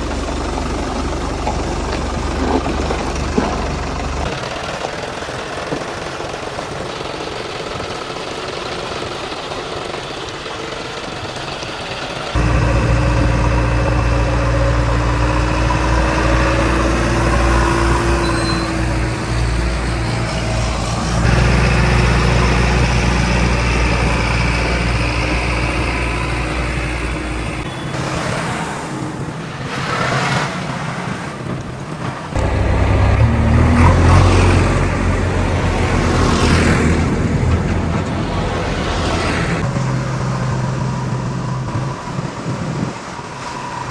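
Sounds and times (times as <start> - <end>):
light engine clatter: 0.0 - 28.4, 31.4 - 43.4
heavy diesel engines droning: 0.0 - 43.9.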